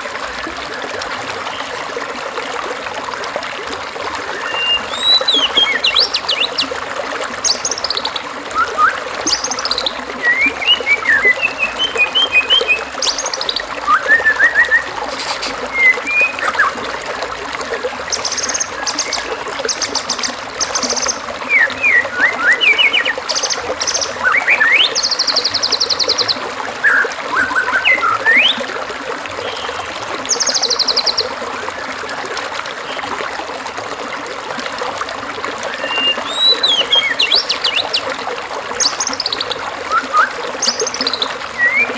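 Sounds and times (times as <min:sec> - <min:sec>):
running water rushing: 0:00.0 - 0:41.9
songbird singing: 0:04.3 - 0:06.8, 0:07.4 - 0:16.8, 0:18.1 - 0:28.7, 0:29.4 - 0:31.3, 0:35.7 - 0:41.9.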